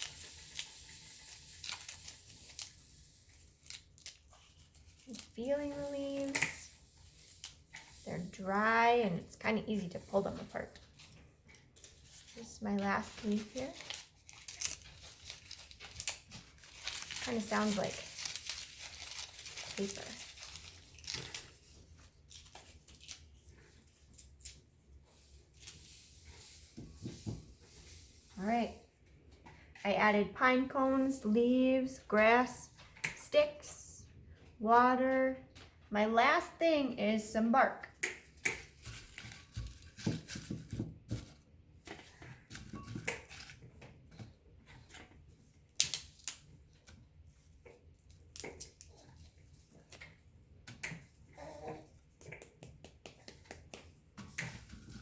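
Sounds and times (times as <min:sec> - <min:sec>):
dry leaves crackling and tearing: 0:00.0 - 0:08.6, 0:12.1 - 0:23.3.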